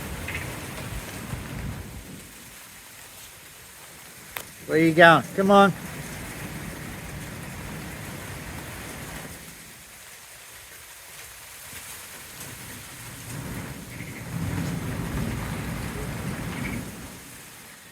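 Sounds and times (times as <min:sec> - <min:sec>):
thunder rumbling: 0:00.0 - 0:02.8, 0:04.1 - 0:09.8, 0:12.5 - 0:17.5
rain falling: 0:00.0 - 0:17.9.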